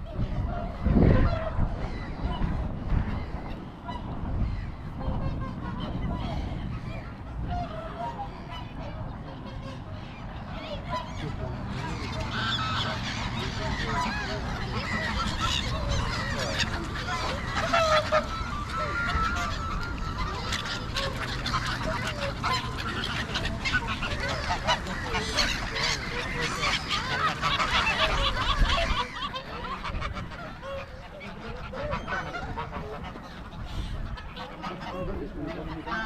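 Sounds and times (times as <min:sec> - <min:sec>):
waterbirds honking and squawking: 0:00.0 - 0:36.0
wind rumbling on microphone: 0:00.0 - 0:36.0.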